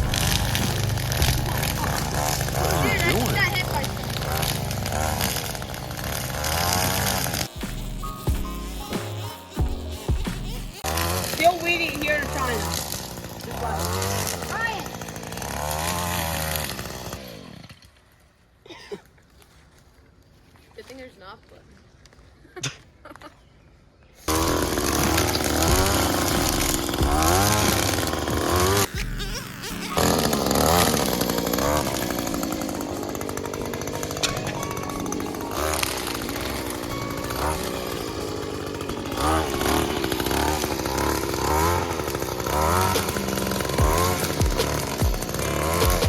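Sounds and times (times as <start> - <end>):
music with heavy bass: 0.0 - 3.4, 7.4 - 10.8, 28.9 - 30.0, 42.6 - 46.0
string trimmer revving: 0.0 - 18.0, 24.3 - 46.0.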